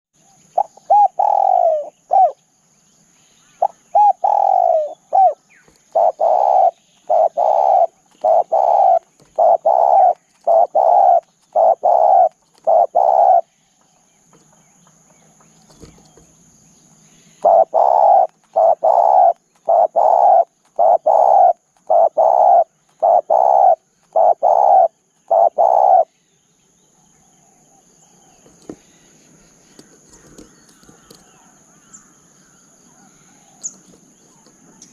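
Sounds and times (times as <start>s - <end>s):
dove cooing: 0.5s - 2.4s, 3.6s - 13.5s, 17.4s - 26.1s.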